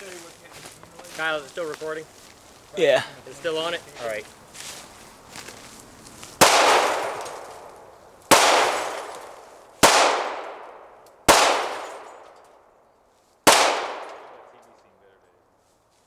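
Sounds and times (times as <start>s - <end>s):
shotgun shots with echo: 6.4s - 12.4s, 13.5s - 14.7s.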